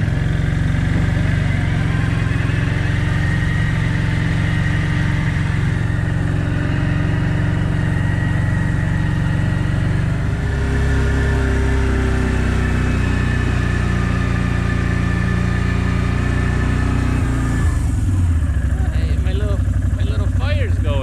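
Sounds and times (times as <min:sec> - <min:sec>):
small petrol engine running: 0:00.0 - 0:21.0.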